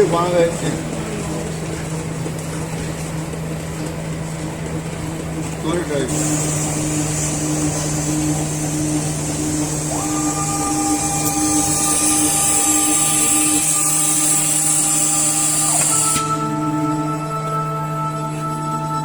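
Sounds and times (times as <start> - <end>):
high machine whine: 0.0 - 19.0
motor hum: 0.0 - 19.0
strong high hiss: 6.1 - 17.9.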